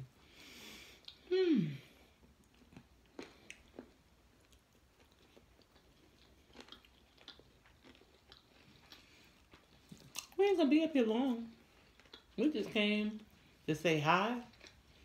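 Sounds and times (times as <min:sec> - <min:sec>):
faint chewing: 0:00.8 - 0:15.0
small mouth clicks: 0:01.0 - 0:01.3.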